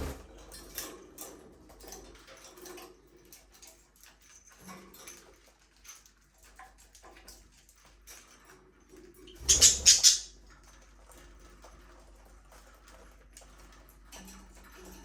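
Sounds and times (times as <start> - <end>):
budgerigars chirping and clicking: 9.3 - 10.4.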